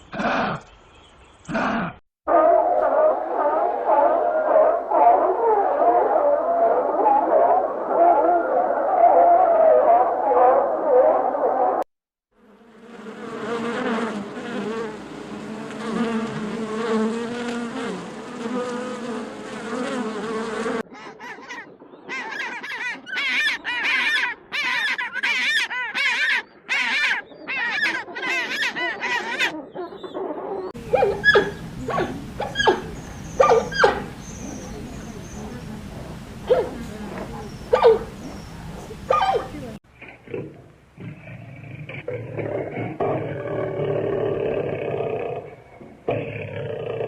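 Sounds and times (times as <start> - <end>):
wavering high-pitched animal calls: 21.0 - 35.6, 36.4 - 39.7.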